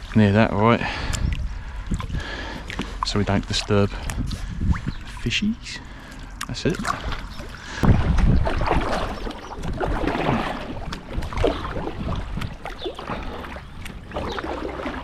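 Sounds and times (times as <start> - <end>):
wind rumble on microphone: 0.0 - 5.7, 7.0 - 14.4
paddle splashing in water: 6.0 - 15.0.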